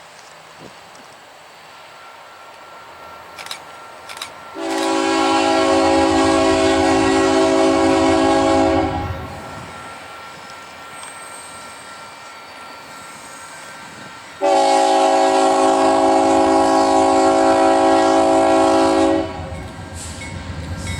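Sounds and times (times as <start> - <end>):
short clicks: 3.4 - 4.9
locomotive air horn blast: 4.5 - 9.7, 14.4 - 20.1.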